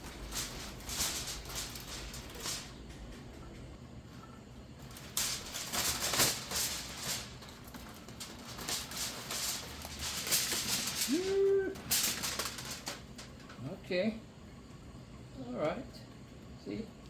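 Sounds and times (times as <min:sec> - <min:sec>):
aluminium foil crinkling: 0:00.0 - 0:03.4, 0:04.8 - 0:13.6
man humming: 0:11.1 - 0:11.8.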